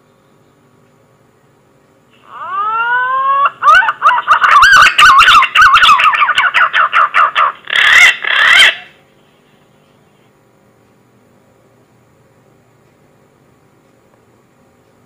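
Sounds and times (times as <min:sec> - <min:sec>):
pigeon whistling song: 0:02.3 - 0:08.9.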